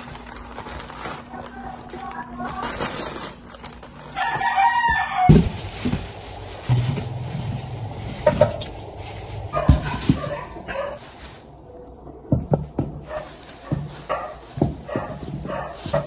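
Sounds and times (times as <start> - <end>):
dog barking: 9.5 - 11.1, 13.0 - 16.0.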